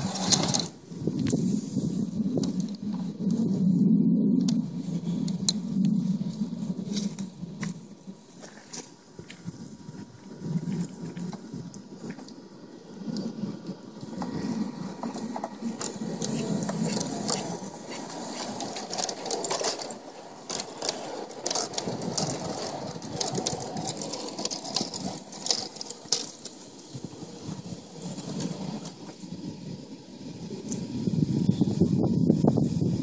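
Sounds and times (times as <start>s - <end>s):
model train motor whirring: 0.0s - 3.5s, 10.4s - 33.0s.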